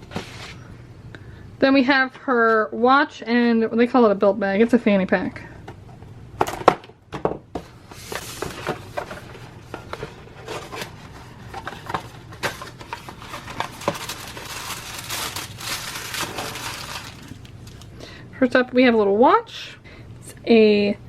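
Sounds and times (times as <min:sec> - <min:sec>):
packaging crinkling and rustling: 0:08.0 - 0:17.9.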